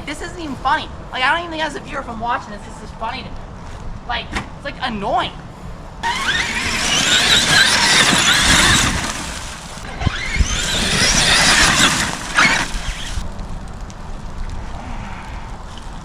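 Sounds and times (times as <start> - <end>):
tyre and drivetrain noise: 5.4 - 16.0
electric motor whining: 6.0 - 13.2.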